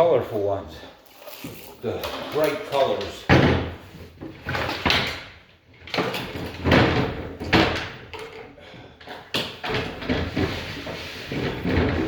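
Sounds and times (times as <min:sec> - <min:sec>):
wooden furniture knocks and scrapes: 0:03.3 - 0:08.2, 0:09.2 - 0:12.0.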